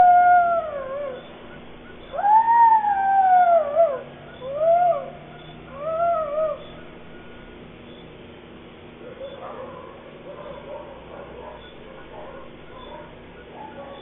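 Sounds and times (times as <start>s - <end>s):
animal howling: 0.0s - 7.5s.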